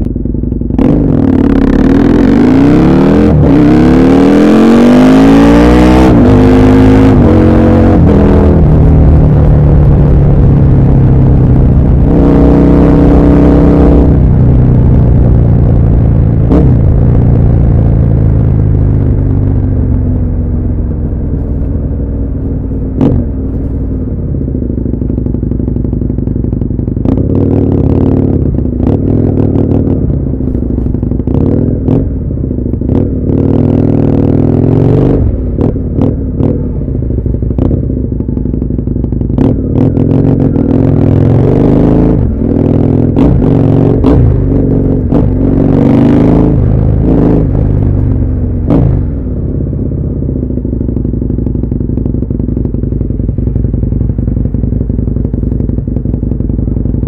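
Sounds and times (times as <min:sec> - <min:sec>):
motorcycle engine running: 0:00.0 - 0:57.0
engine revs with sharp cracks: 0:48.6 - 0:49.2.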